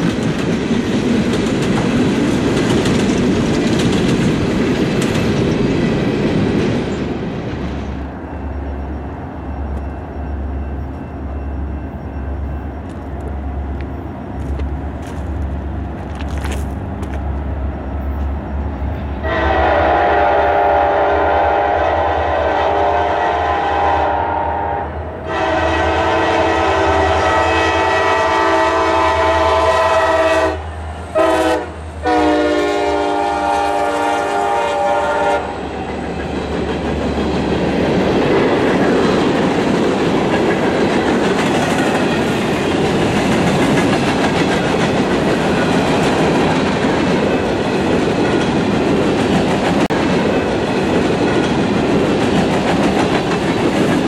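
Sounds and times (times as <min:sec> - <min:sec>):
train wheels clattering on rails: 0:00.0 - 0:19.4, 0:32.6 - 0:54.0
locomotive engine rumble: 0:00.0 - 0:20.8
locomotive air horn: 0:19.2 - 0:35.6.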